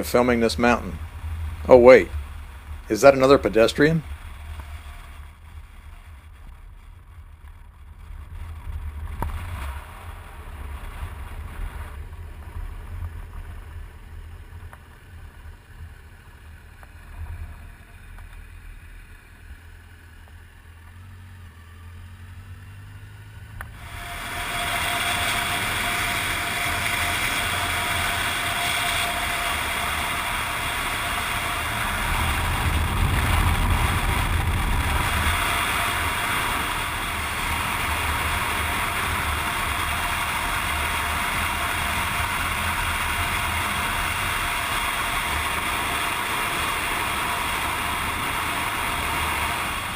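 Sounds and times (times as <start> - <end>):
loud steady rushing hum: 0.0 - 20.1, 23.4 - 49.9
vehicle engine low rumble: 0.0 - 49.9.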